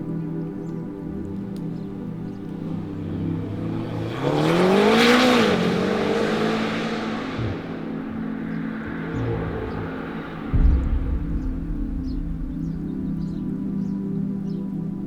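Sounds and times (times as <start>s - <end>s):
tyre and wind rush: 0.0s - 15.0s
car engine passing by: 0.8s - 14.6s
low thump: 8.8s - 14.4s.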